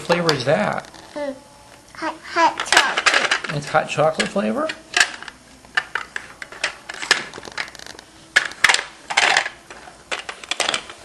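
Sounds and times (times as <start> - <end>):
toy pieces clicking and clattering: 5.0 - 11.0.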